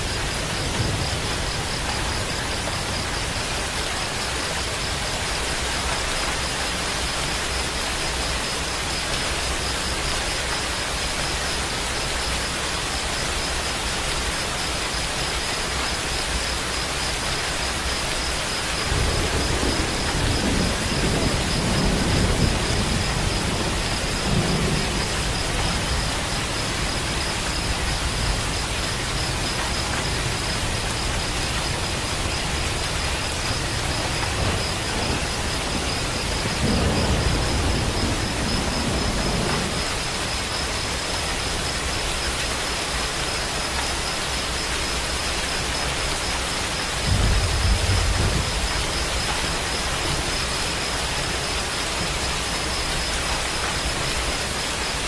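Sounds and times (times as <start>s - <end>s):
rolling thunder: 0.0s - 3.6s, 18.8s - 40.4s, 47.0s - 50.5s
steady rain falling: 0.0s - 55.0s.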